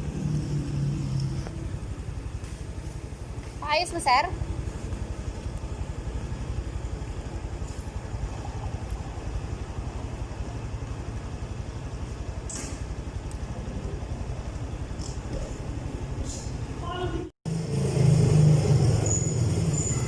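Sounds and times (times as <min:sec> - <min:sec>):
motorcycle engine idling: 0:00.0 - 0:17.2.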